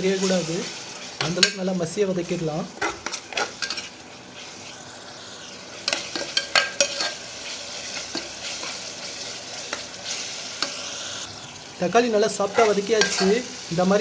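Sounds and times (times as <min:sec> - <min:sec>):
onions frying in oil: 0:00.0 - 0:14.0
metal spoon scraping pot: 0:05.8 - 0:07.2, 0:12.5 - 0:13.4.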